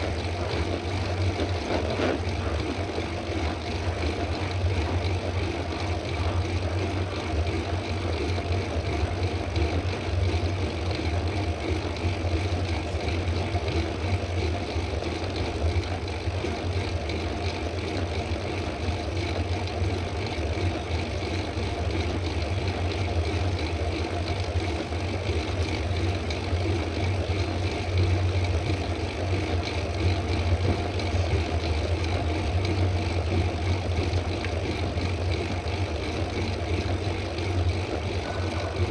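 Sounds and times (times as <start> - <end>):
bicycle tyres on paved road: 0.0 - 38.9
constant low drone: 0.0 - 38.9.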